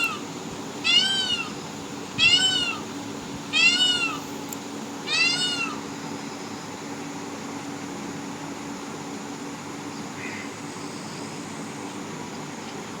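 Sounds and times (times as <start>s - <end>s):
peacock call: 0.0s - 1.6s, 2.2s - 2.9s, 3.5s - 4.3s, 5.1s - 5.8s
low background hum: 0.0s - 13.0s.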